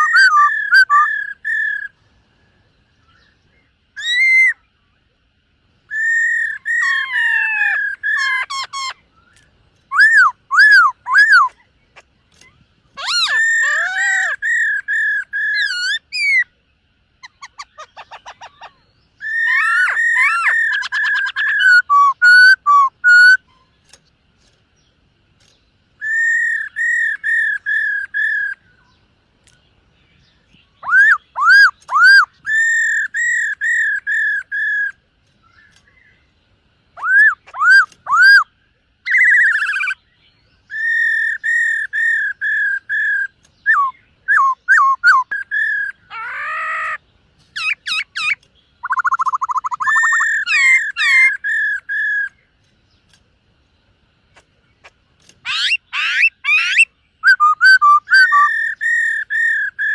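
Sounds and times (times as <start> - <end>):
bird singing whistled phrases: 0.0 - 2.0, 4.0 - 4.7, 5.9 - 11.6, 12.4 - 16.5, 17.2 - 23.7, 26.0 - 29.0, 30.5 - 36.2, 37.0 - 47.0, 47.6 - 52.4, 55.4 - 59.9.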